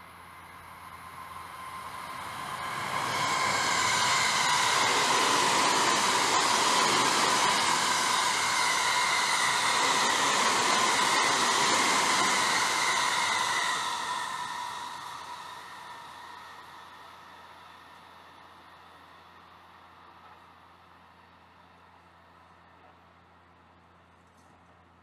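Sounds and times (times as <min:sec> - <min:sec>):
high steady whine: 0:00.0 - 0:19.5
train wheel and rail noise: 0:00.0 - 0:25.0.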